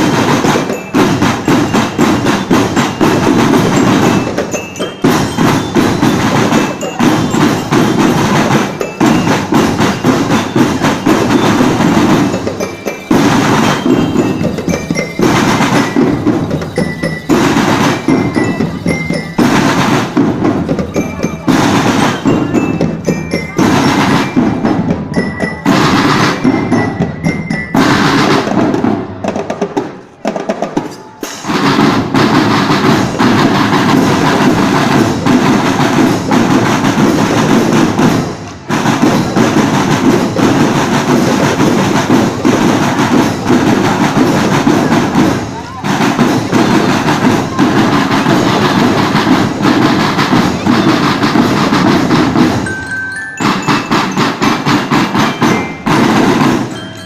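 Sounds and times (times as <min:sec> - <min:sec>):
glockenspiel melody: 0:00.0 - 0:29.1, 0:46.5 - 0:57.0
marching drums: 0:00.0 - 0:57.0.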